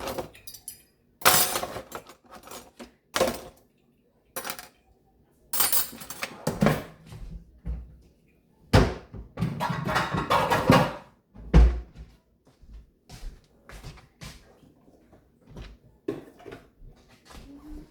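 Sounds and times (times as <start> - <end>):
dishes and pans knocking together: 8.8 - 11.1.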